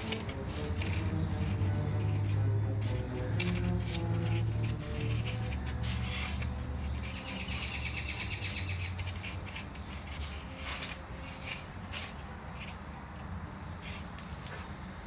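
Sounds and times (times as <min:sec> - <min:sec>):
bird trilling: 0:06.9 - 0:09.1.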